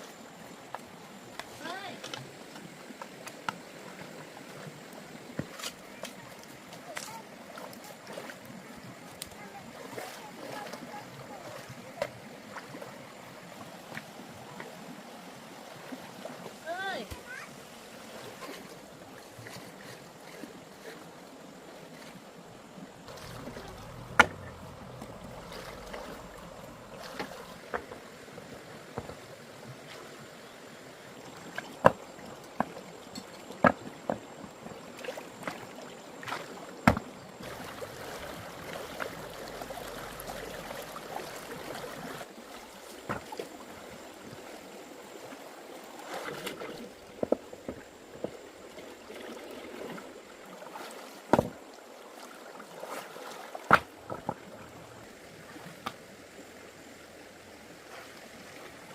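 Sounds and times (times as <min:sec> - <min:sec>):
water sloshing and lapping: 0:00.0 - 0:58.9
sharp knocks or splashes: 0:23.1 - 0:28.1, 0:35.0 - 0:40.5, 0:51.3 - 0:51.6, 0:53.6 - 0:54.4.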